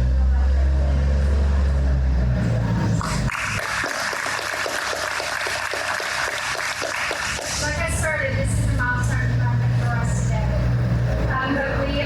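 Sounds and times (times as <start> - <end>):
applause: 3.0 - 7.9.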